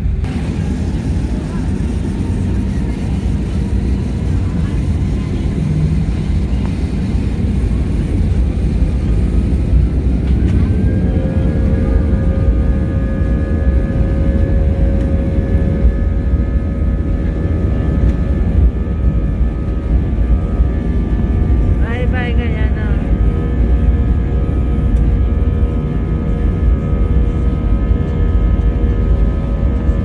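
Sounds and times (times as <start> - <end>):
airliner engine rumble: 0.0 - 30.0
engine whine: 0.0 - 30.0.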